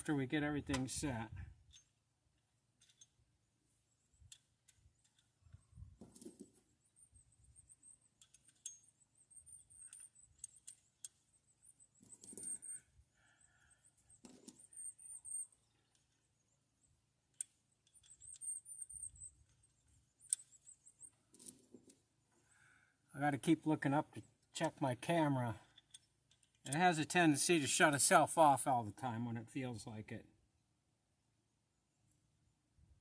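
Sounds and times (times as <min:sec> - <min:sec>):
light metallic clicks and clinks: 0:01.6 - 0:02.0, 0:02.8 - 0:03.2, 0:08.2 - 0:09.0, 0:09.7 - 0:11.3, 0:25.6 - 0:26.8.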